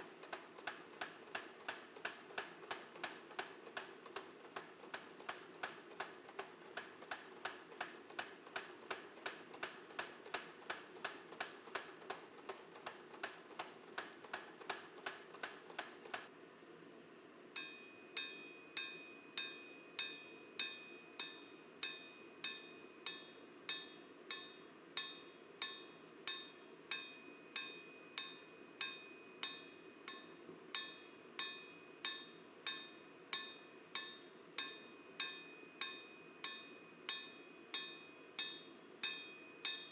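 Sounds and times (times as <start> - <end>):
hammer striking steel on anvil: 17.6 - 39.9.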